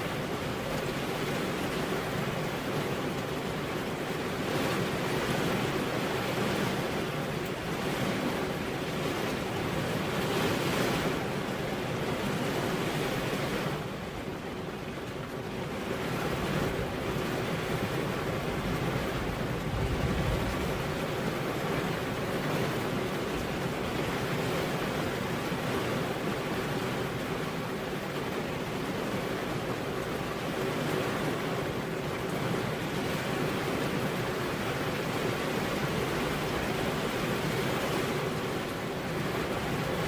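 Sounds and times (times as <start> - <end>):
steady rain falling: 0.0 - 40.0
low rumble: 19.6 - 21.0.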